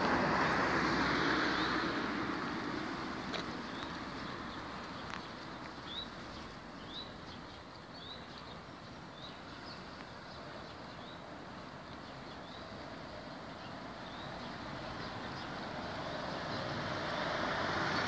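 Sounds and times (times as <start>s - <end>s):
outdoor background noise: 0.0s - 18.0s
bird chirping: 3.6s - 11.3s.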